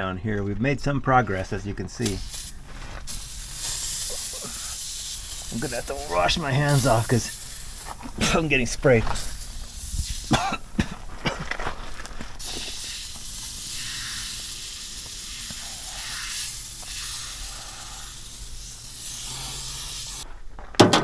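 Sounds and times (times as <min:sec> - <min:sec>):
aerosol can spraying hiss: 0:02.0 - 0:10.8, 0:12.4 - 0:20.2.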